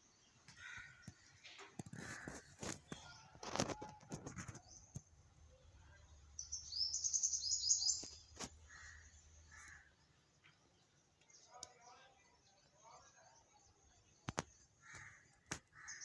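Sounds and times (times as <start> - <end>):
small bird chirping: 6.0 - 11.9.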